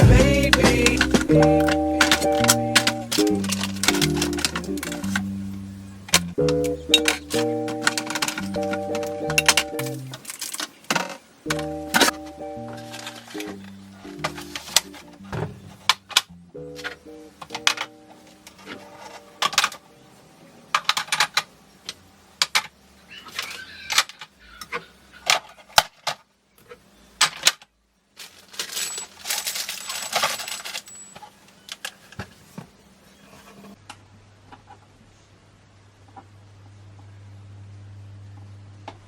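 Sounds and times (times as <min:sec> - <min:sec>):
kitchen items clinking and clattering: 0:00.4 - 0:05.3, 0:06.1 - 0:16.1, 0:28.2 - 0:32.5.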